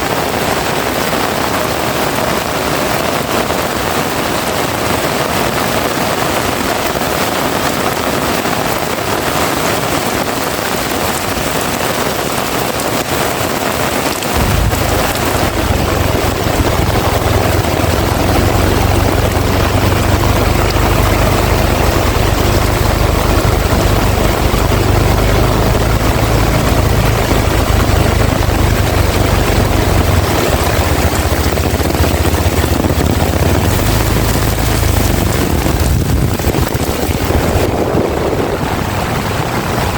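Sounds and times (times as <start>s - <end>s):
heavy rain pouring: 0.0s - 39.9s
deep low rumble: 14.1s - 39.9s.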